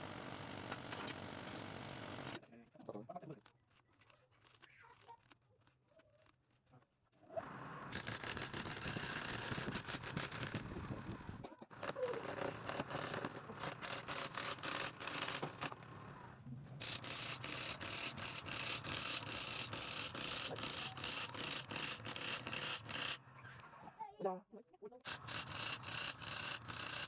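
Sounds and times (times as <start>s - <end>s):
tool scraping wood: 7.9s - 10.8s, 11.7s - 15.8s, 16.8s - 23.2s, 25.1s - 27.0s.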